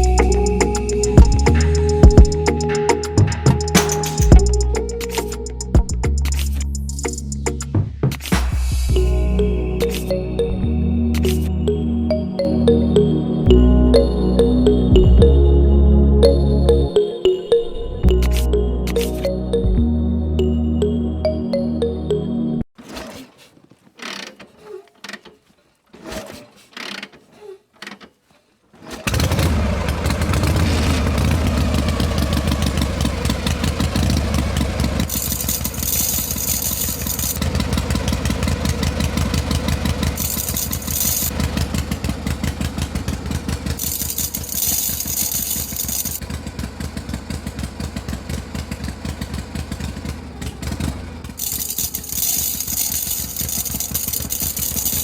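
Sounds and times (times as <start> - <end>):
engine starting and idling: 28.8 - 55.0.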